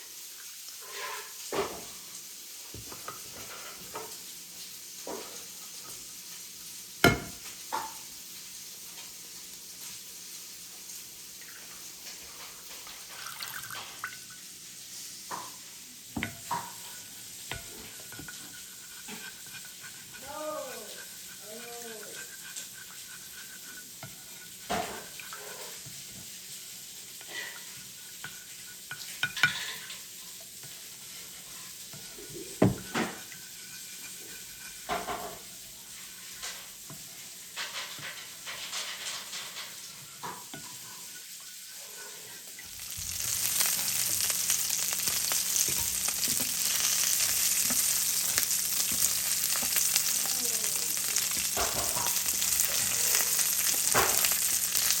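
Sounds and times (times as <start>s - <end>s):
food sizzling in a pan: 0.0s - 55.0s
utensils and dishes clinking: 28.2s - 30.1s, 37.5s - 41.3s, 42.6s - 55.0s.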